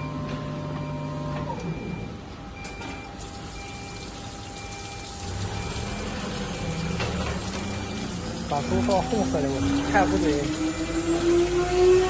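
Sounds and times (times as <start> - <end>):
machine motors humming: 0.0 - 12.0
motor whine: 5.0 - 12.0.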